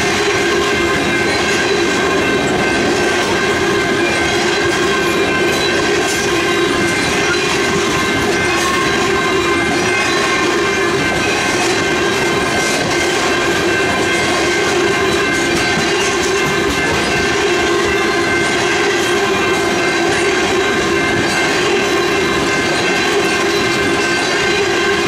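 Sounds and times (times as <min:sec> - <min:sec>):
steady ringing tone: 0:00.0 - 0:25.0
train wheels rumbling on rails: 0:00.0 - 0:25.0.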